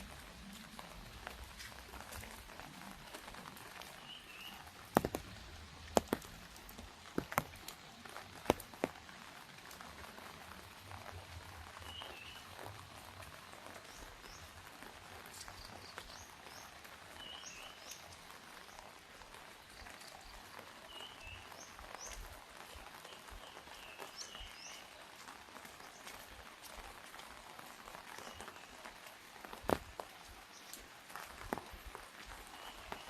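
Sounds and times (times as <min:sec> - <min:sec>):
light rain pattering: 0:00.0 - 0:33.0
bird chirping: 0:03.8 - 0:05.2, 0:32.5 - 0:33.0
sharp drip taps: 0:04.8 - 0:09.0.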